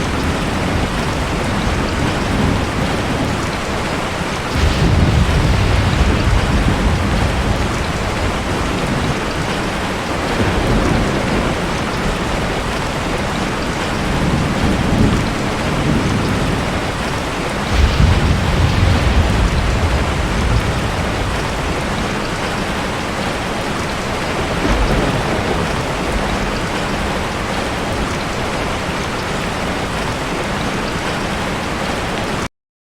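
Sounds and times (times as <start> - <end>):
thunder rumbling: 0.0 - 30.7
heavy rain hissing: 0.0 - 31.8.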